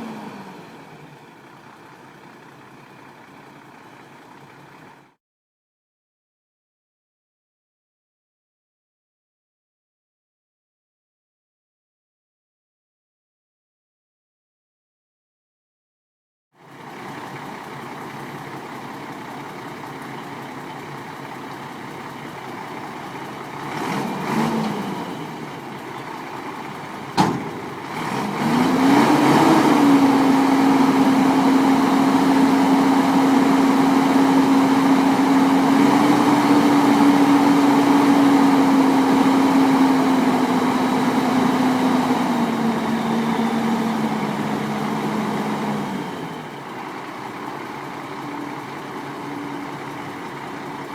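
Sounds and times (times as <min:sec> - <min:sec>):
truck engine idling and revving: 0:00.0 - 0:05.2, 0:16.6 - 0:50.9.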